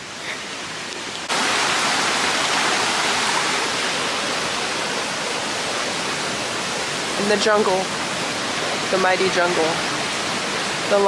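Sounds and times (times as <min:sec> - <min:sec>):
stream flowing over rocks: 0:00.0 - 0:11.0.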